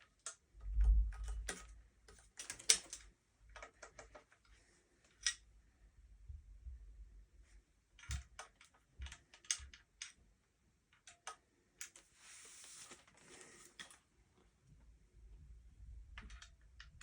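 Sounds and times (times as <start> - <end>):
soft rustling: 12.0 - 14.0.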